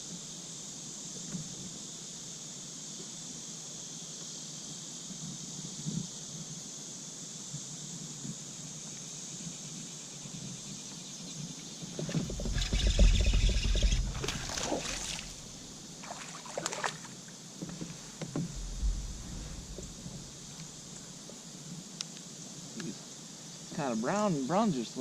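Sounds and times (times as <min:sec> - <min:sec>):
knocks against kayak hull: 0:12.0 - 0:15.7, 0:17.6 - 0:20.3
water sloshing and dripping: 0:12.0 - 0:20.6.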